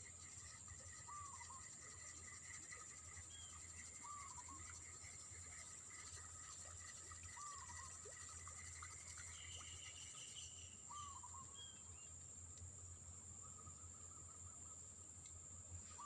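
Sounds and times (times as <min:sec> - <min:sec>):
high-pitched insect drone: 0:00.0 - 0:11.9
bird trill: 0:00.4 - 0:01.9, 0:03.1 - 0:04.9, 0:09.2 - 0:12.1
bird chirping: 0:03.1 - 0:04.7, 0:09.2 - 0:12.2.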